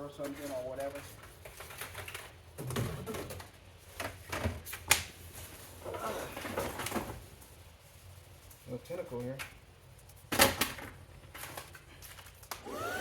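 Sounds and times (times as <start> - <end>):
plastic parts knocking and rustling: 0.2 - 4.8, 10.3 - 12.5.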